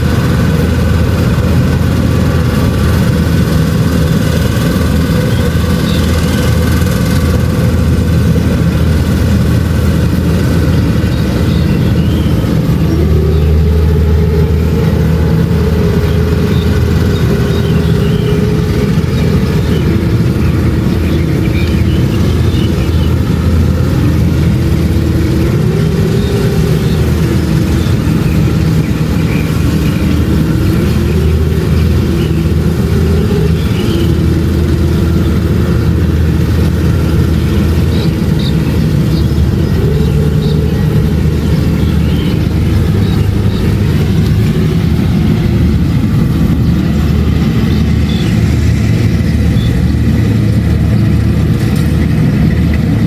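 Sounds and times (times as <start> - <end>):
combine harvester engine droning: 0.0 - 53.0.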